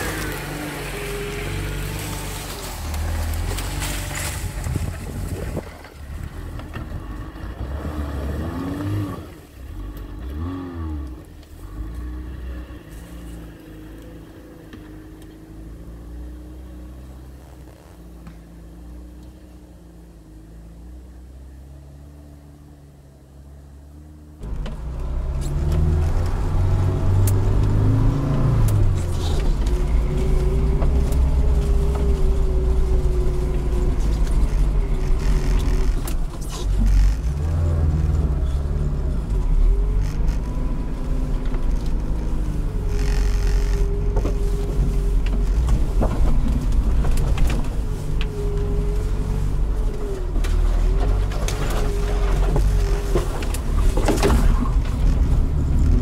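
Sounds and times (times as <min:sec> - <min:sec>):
car engine under load: 0:00.0 - 0:56.0
car knocks and rattles: 0:27.4 - 0:49.1, 0:50.3 - 0:56.0.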